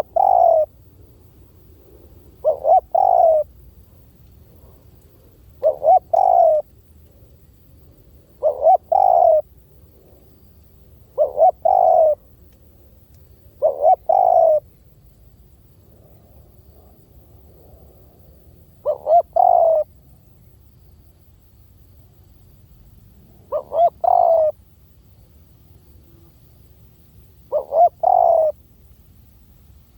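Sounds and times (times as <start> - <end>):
dove cooing: 0.0 - 0.8, 1.8 - 3.5, 4.5 - 6.7, 8.3 - 10.2, 11.0 - 12.3, 13.5 - 14.7, 18.8 - 19.9, 23.4 - 24.6, 27.5 - 28.6.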